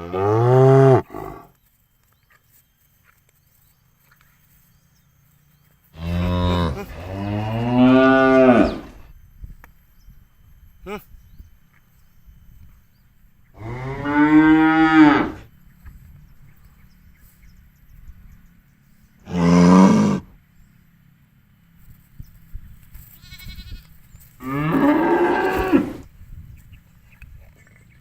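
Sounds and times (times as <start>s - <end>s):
cow mooing: 0.0s - 1.5s, 6.0s - 9.1s, 13.6s - 15.5s, 19.2s - 20.4s, 24.4s - 26.1s.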